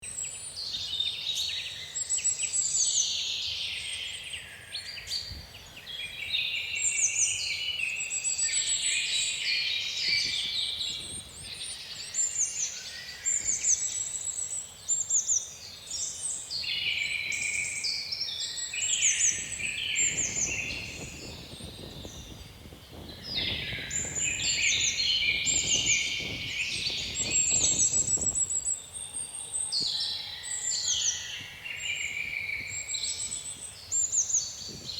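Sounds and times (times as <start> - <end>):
songbirds singing: 0.0 - 34.9
wind gusts rumbling: 19.2 - 28.8.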